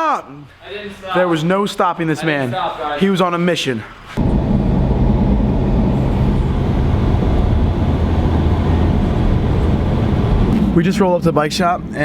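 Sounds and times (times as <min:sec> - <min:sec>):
vehicle engine running: 0:04.2 - 0:10.8
road noise rumble: 0:04.2 - 0:11.9.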